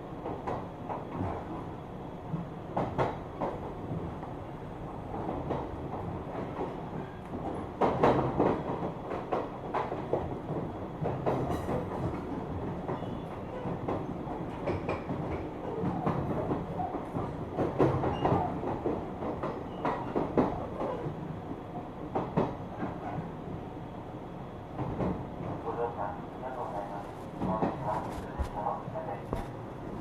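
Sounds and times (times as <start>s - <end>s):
train wheels clattering over rail joints: 6.4s - 21.1s
train running rumble: 24.5s - 30.0s.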